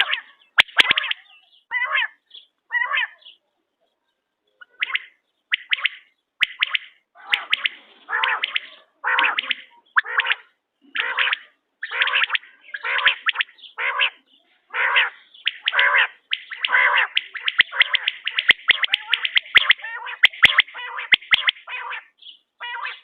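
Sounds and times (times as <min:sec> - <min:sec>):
quail calling in harsh bursts: 0:00.0 - 0:03.2, 0:04.6 - 0:23.0.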